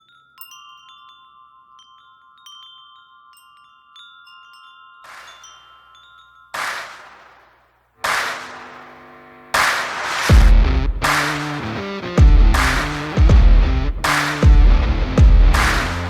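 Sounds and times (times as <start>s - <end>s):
wind chimes ringing: 0.0s - 7.3s
loud whoosh: 9.6s - 11.7s.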